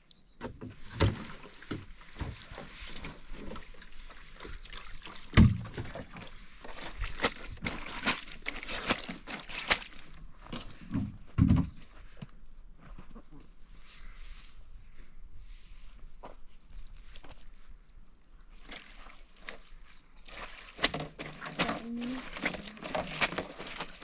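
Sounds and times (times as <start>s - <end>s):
water sloshing and pouring: 0.6s - 11.0s, 16.6s - 24.0s.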